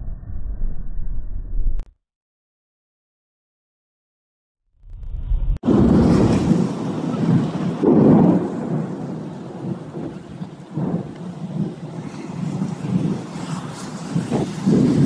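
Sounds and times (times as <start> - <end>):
heavy rain pouring: 5.6 - 15.0.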